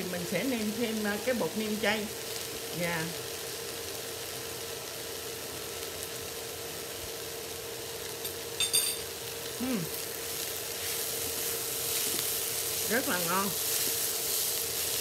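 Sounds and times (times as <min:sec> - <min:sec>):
rice sizzling in a frying pan: 0:00.0 - 0:15.0
metal utensil clink: 0:08.2 - 0:09.1.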